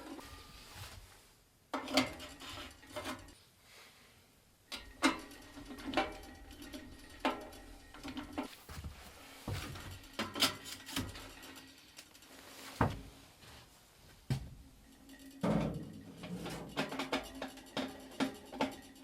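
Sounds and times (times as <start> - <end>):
objects knocking and clunking: 4.7 - 11.6, 12.8 - 13.2, 15.4 - 19.0.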